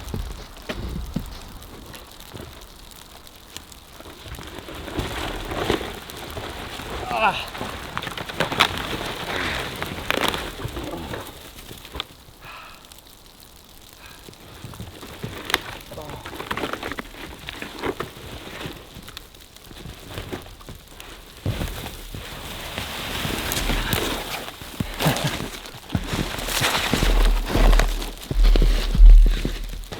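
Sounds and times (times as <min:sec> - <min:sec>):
rustling of branches: 0:00.0 - 0:29.9
dry twigs snapping: 0:22.7 - 0:29.9.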